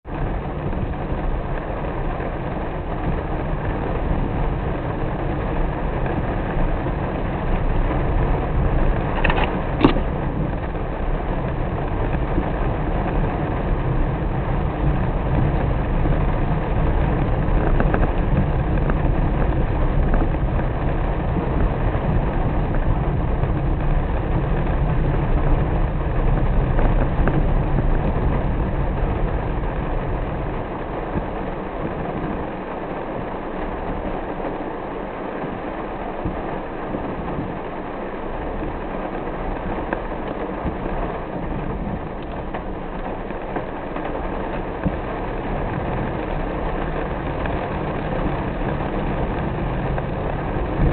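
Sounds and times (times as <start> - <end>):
car driving on wet road: 0.0 - 50.9
rain hiss: 0.1 - 50.9.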